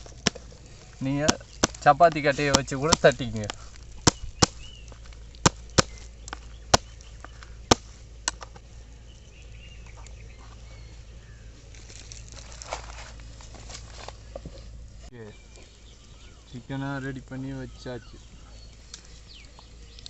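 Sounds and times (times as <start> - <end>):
birds chirping softly: 0.0 - 20.0
meat being pounded: 1.2 - 3.2, 4.0 - 4.7.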